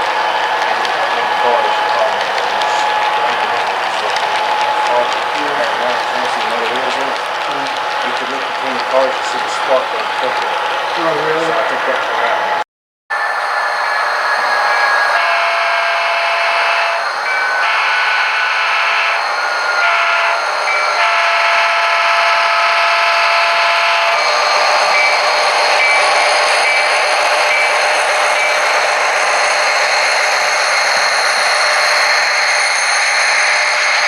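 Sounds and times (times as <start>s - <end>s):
model train horn blasts: 0.0s - 12.6s, 15.1s - 17.0s, 17.6s - 19.2s, 19.8s - 20.4s, 21.0s - 24.2s
steady running hiss: 0.0s - 12.6s.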